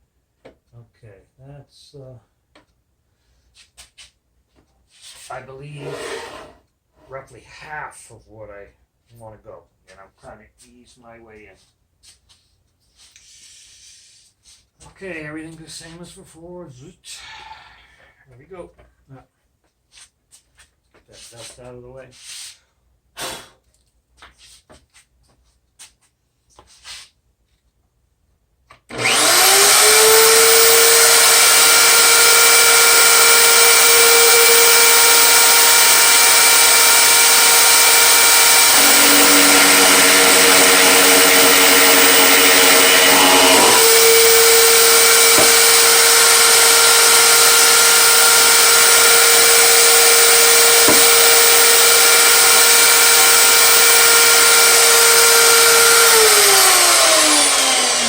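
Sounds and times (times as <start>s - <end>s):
power tool motor whining: 28.9s - 58.0s.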